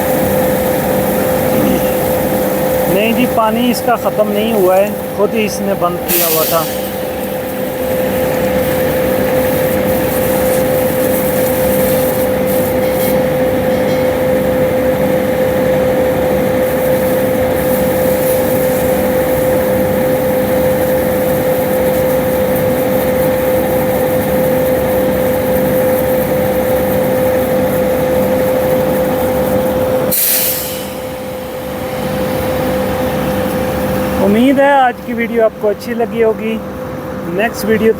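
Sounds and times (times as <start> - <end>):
air hiss: 0.0 - 13.2, 30.1 - 32.7
concrete mixer truck running: 0.0 - 37.9.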